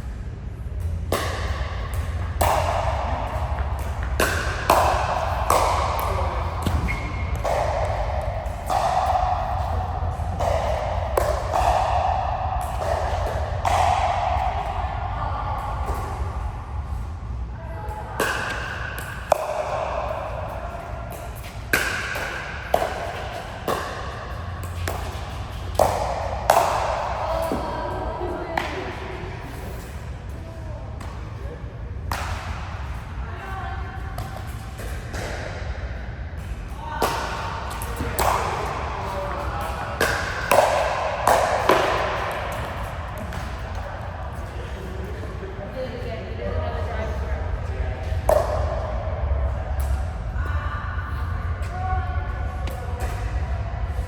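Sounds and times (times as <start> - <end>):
racket striking ball: 1.1 - 16.6, 18.2 - 27.7, 34.2 - 35.8, 36.4 - 43.8.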